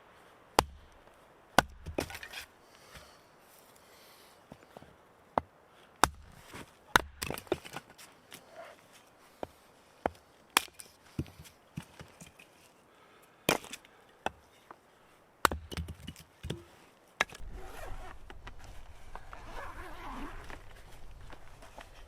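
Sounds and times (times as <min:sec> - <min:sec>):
low rumble with rustling: 0:17.4 - 0:22.0.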